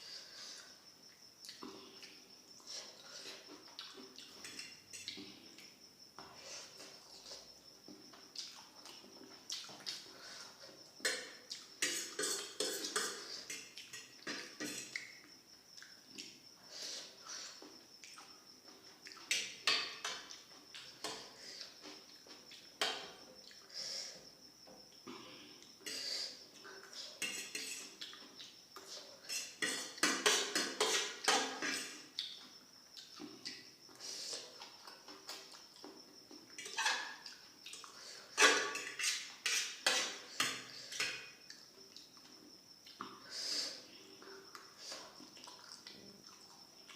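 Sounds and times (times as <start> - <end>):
cutlery scraping on a plate: 11.1 - 15.0, 26.9 - 28.0, 28.8 - 32.0, 38.4 - 41.4.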